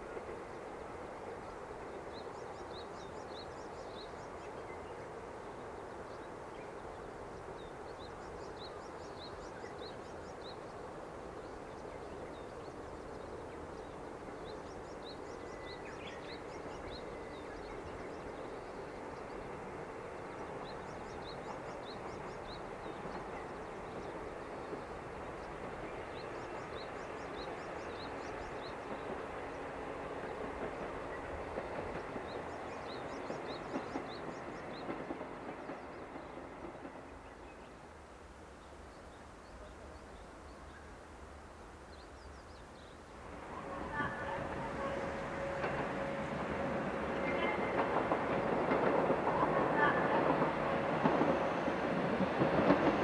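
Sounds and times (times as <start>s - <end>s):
diesel train engine rumble: 43.1s - 53.0s.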